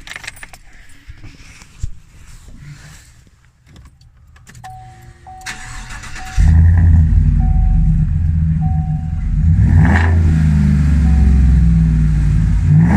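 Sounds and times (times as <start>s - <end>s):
electronic chime beeping: 7.3s - 8.0s, 8.6s - 9.3s, 11.0s - 11.6s.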